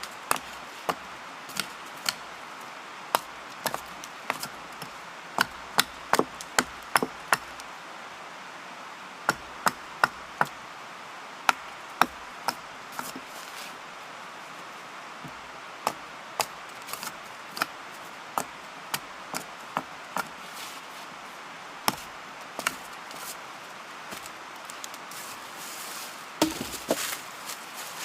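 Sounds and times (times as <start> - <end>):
wood chopping knocks: 26.4 - 27.2.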